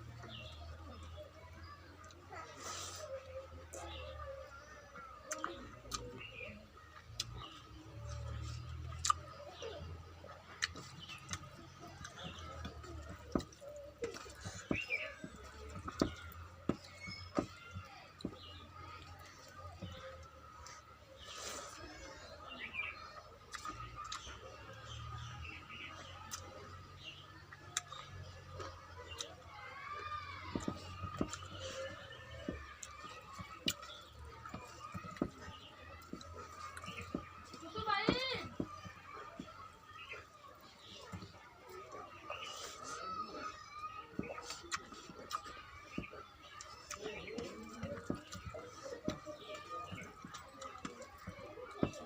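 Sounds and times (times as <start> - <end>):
wet chewing: 10.2 - 22.7, 23.4 - 26.7, 27.3 - 52.0.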